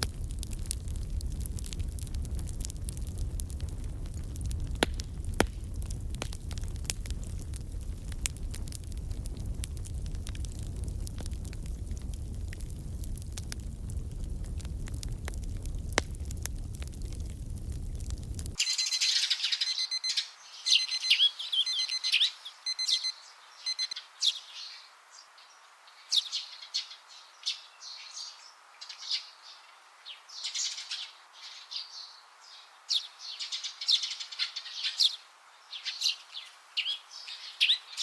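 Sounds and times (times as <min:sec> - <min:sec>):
crackling bonfire: 0:00.0 - 0:19.0
birds chirping and twittering: 0:18.6 - 0:38.0.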